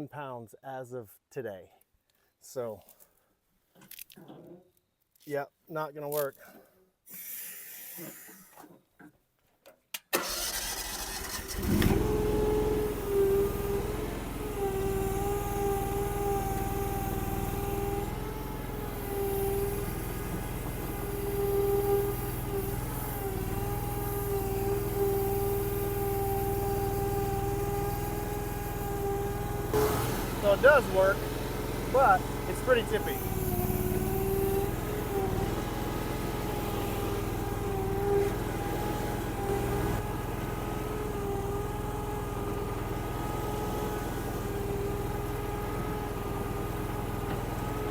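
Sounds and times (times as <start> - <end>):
skid steer engine revving: 10.2 - 47.9.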